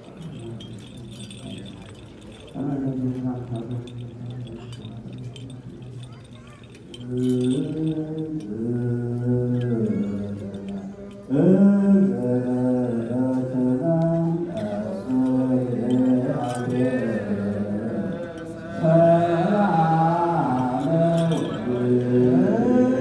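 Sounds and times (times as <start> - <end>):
voices chanting a hymn: 11.3 - 23.0.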